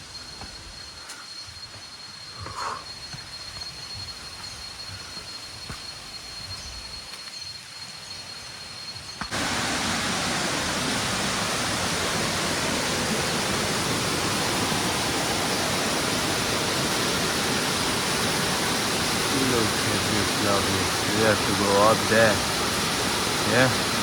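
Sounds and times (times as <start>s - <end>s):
high insect trill: 0.0s - 24.0s
waterfall rushing: 9.3s - 24.0s.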